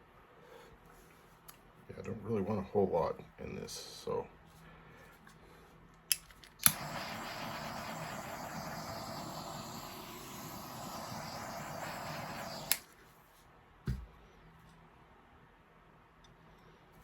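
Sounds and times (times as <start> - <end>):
electric blower blowing: 6.6 - 12.9.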